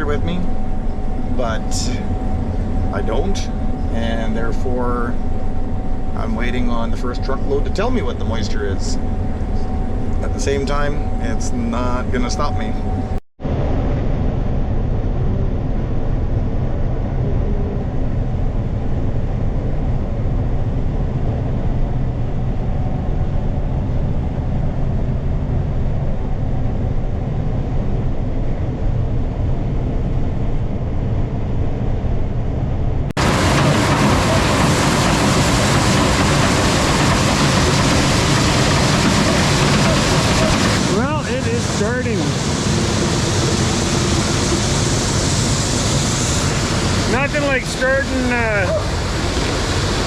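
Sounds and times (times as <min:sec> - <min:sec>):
hissy machinery noise: 0:00.0 - 0:13.2, 0:33.2 - 0:50.0
harvester engine droning: 0:00.0 - 0:30.0, 0:32.7 - 0:50.0.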